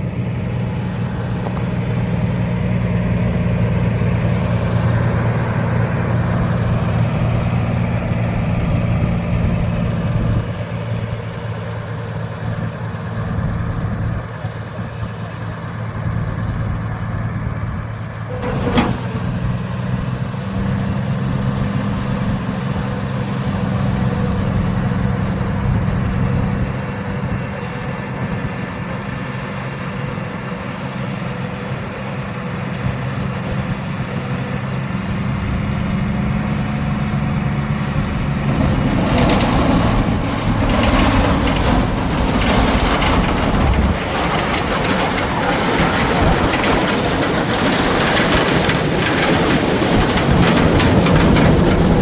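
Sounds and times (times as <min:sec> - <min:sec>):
diesel truck engine running: 0:00.0 - 0:52.0
broad rattling noise: 0:18.2 - 0:30.6, 0:35.6 - 0:52.0.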